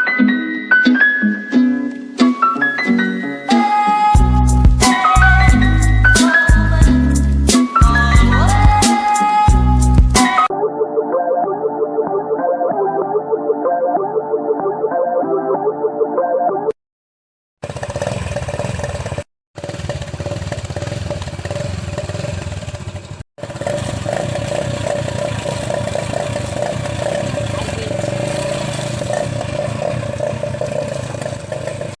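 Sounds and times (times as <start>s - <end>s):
motorcycle engine running: 17.6s - 32.0s.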